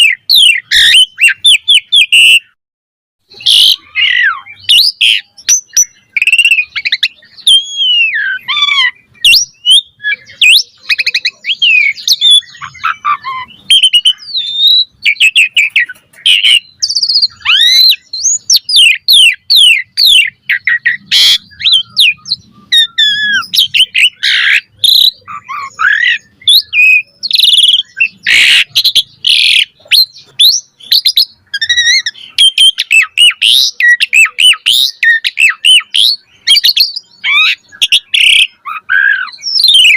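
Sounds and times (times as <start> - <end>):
starling singing: 0.0 - 2.6, 3.2 - 39.9.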